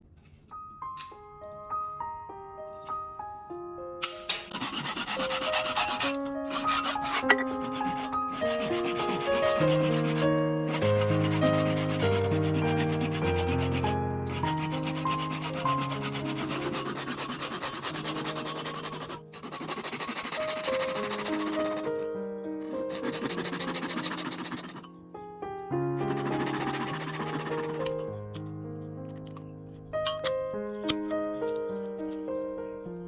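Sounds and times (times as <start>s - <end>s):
gentle piano music: 0.0s - 33.0s
hand rubbing bamboo: 4.5s - 21.9s, 22.9s - 24.8s.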